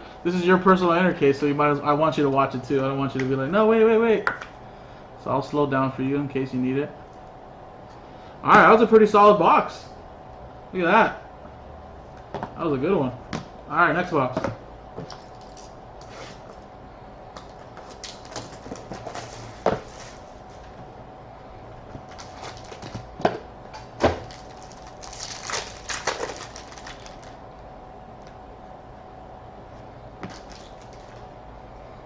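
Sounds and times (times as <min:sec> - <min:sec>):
faint steady hum: 0:00.0 - 0:32.0
scraping rustles: 0:15.2 - 0:16.6, 0:17.5 - 0:20.8.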